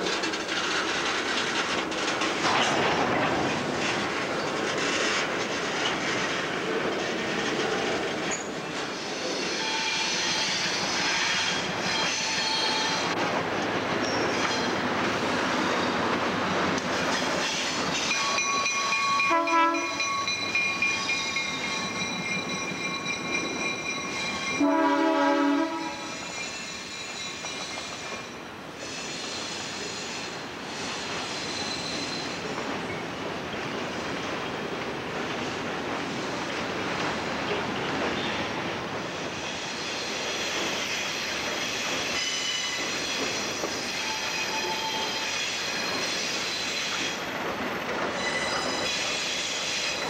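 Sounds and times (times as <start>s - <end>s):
freight train rolling: 0.0s - 50.0s
wheel squeal: 8.3s - 13.1s, 25.9s - 32.5s, 39.1s - 47.2s, 48.0s - 50.0s
locomotive horn blast: 19.3s - 20.0s, 24.6s - 26.1s.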